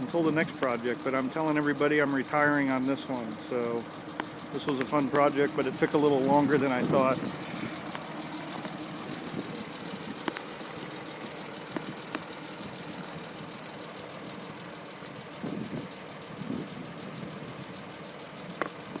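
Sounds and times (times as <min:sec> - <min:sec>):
engine idling: 0:00.0 - 0:19.0
sharp clicks: 0:03.8 - 0:13.0.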